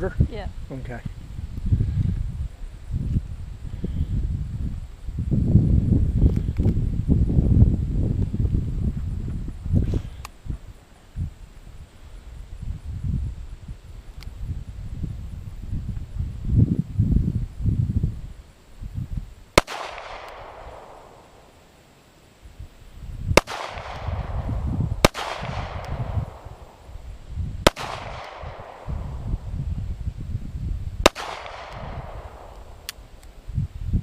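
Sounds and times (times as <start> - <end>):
wind rumble on microphone: 0.0 - 21.4, 22.4 - 34.0
handgun shots echoing: 19.6 - 21.2, 23.4 - 24.2, 25.0 - 26.2, 27.7 - 28.9, 31.1 - 33.0.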